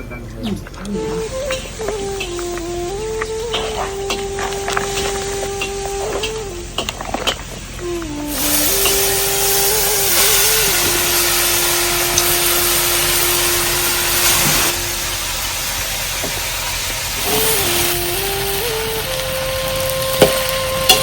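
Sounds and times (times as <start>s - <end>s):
heavy rain falling: 0.6s - 21.0s.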